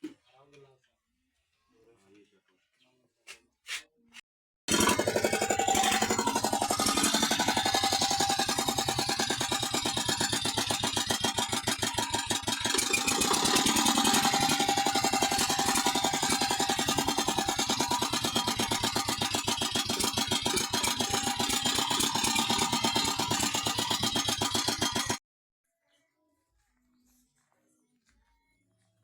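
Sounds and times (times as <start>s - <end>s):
walking tractor engine running: 4.7s - 25.2s.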